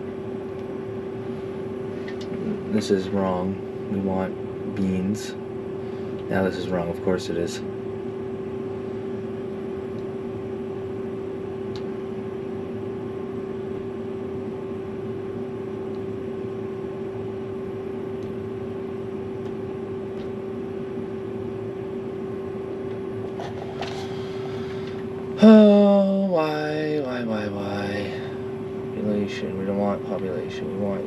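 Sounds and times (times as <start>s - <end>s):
combine harvester humming: 19.0s - 31.0s.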